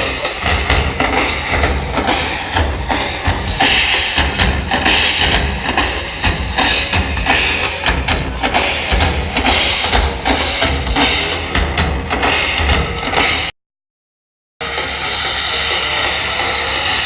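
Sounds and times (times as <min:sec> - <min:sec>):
bass drums: 0:00.0 - 0:13.5, 0:14.6 - 0:17.0
snare drums in fast rhythm: 0:00.0 - 0:13.5.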